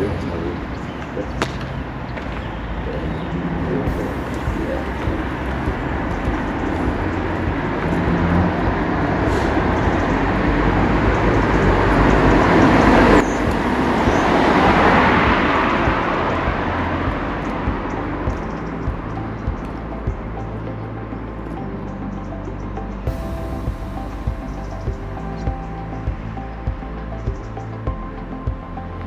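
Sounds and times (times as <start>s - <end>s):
road traffic passing: 0.2s - 21.5s.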